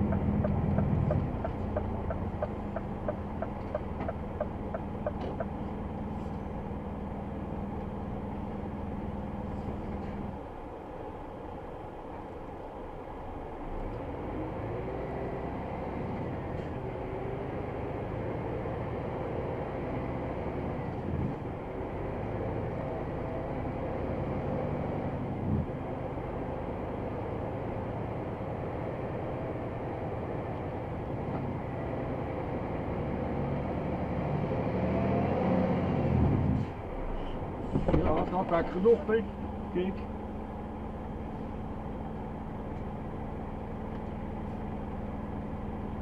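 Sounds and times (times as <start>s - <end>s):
truck diesel engine running: 0.0s - 13.8s, 36.4s - 46.0s.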